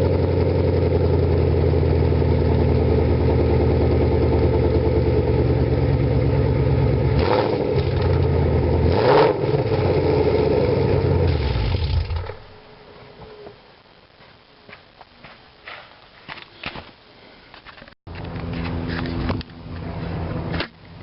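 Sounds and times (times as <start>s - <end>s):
car engine idling: 0.0s - 7.2s
engine revving bursts: 7.2s - 8.2s, 8.8s - 12.4s.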